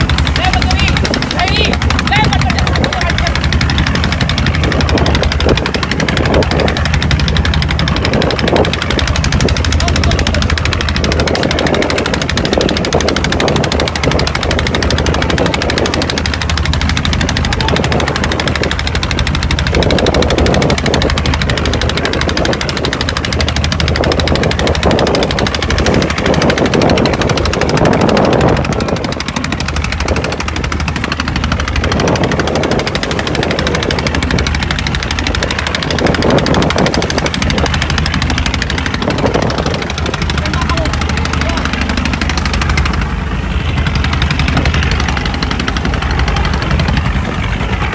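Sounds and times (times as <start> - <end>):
boat engine knocking: 0.0 - 47.9
constant rushing water noise: 0.0 - 47.9.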